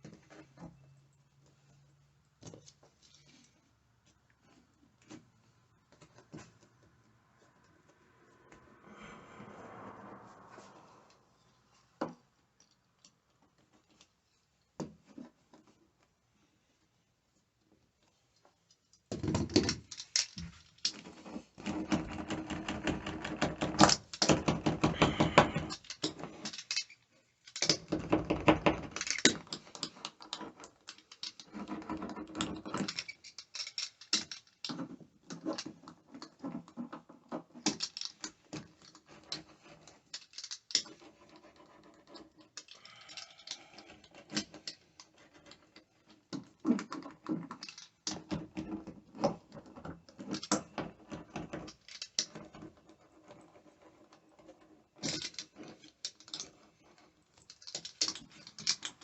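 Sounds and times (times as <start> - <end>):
tools clicking tapping and scraping: 18.4 - 59.0.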